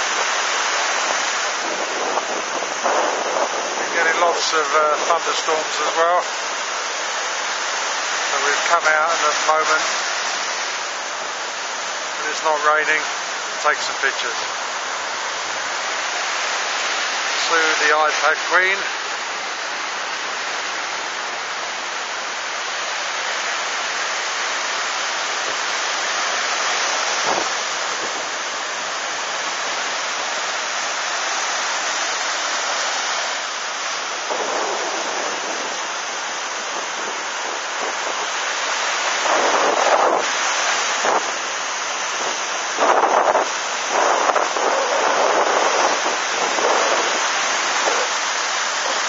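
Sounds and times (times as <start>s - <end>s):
wind buffeting microphone: 0.0s - 5.8s, 27.1s - 28.5s, 34.0s - 48.2s
ocean swell breaking: 0.0s - 49.0s.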